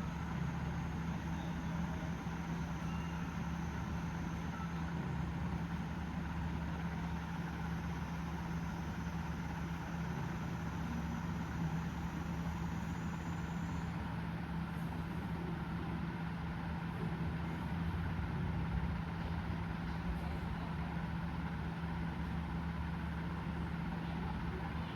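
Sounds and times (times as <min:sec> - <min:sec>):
faint high whine: 0:00.0 - 0:05.8
low mechanical hum: 0:00.0 - 0:24.9.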